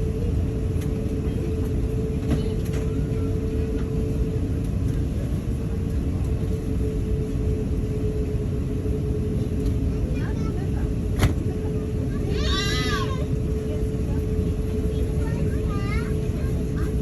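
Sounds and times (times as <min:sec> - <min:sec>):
aircraft cabin rumble and hum: 0:00.0 - 0:17.0.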